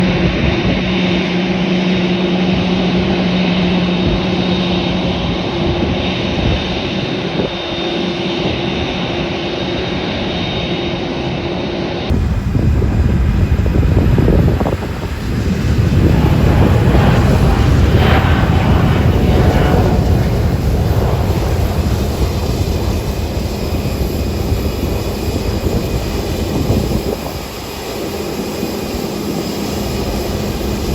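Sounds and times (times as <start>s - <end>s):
jet engines whining: 0.0s - 30.9s
deep rumble with rushing noise: 12.1s - 30.9s.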